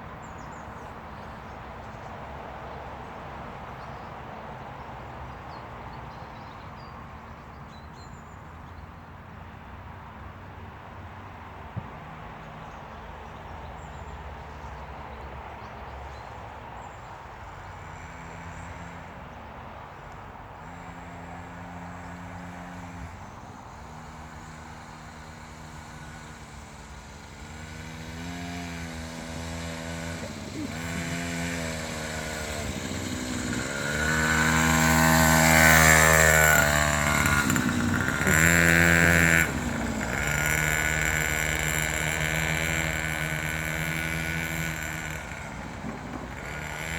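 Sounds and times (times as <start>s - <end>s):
motocross bike engine revving: 17.7s - 19.3s, 20.6s - 46.9s.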